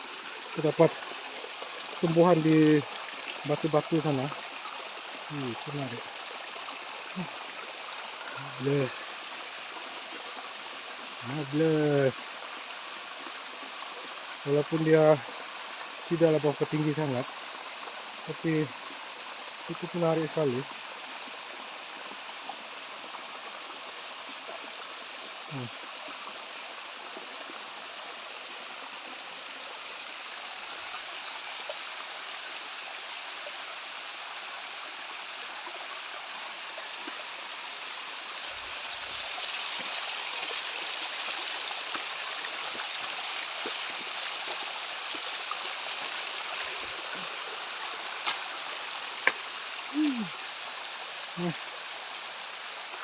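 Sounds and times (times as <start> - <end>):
waterfall splashing over rocks: 0.0 - 53.0.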